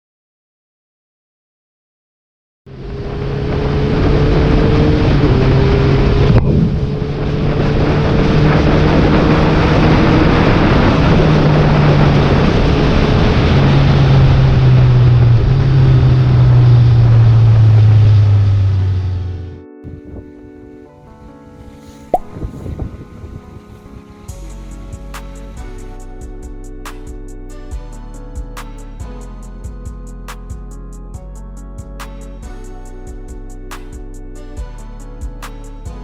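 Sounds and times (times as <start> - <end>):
wind rush on microphone: 2.8 - 25.7.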